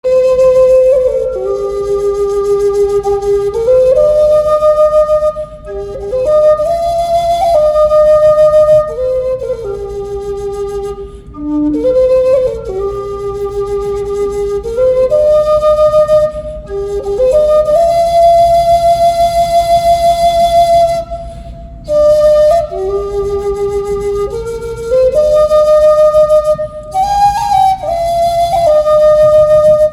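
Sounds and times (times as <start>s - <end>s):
solo flute slow melody: 0.0s - 29.9s
flute player breathing: 5.1s - 17.8s, 20.0s - 24.8s, 26.1s - 28.7s.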